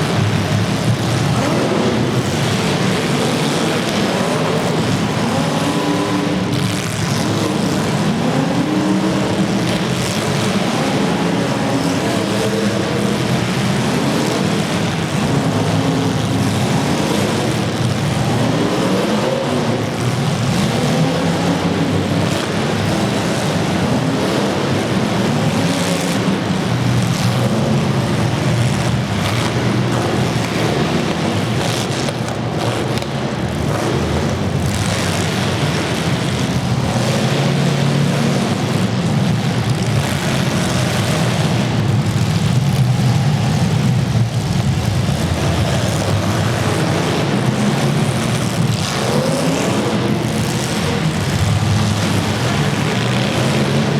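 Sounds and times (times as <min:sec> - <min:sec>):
car engines revving hard: 0:00.0 - 0:53.9.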